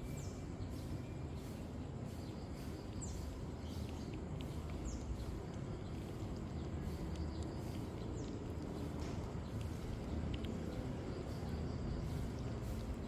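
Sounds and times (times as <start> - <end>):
faint ticks: 3.8 - 10.9.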